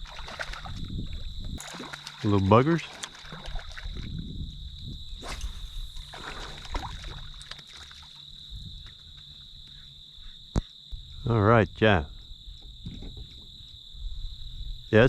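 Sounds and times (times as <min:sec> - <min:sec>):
water sounds: 0:00.0 - 0:09.4
insects droning: 0:00.0 - 0:15.0
kayak knocks: 0:12.6 - 0:13.6.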